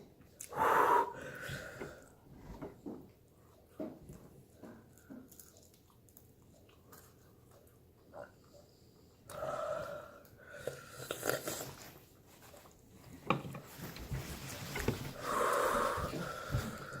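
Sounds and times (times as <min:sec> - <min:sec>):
person breathing hard: 0:00.5 - 0:02.2, 0:09.3 - 0:11.1, 0:15.1 - 0:17.0.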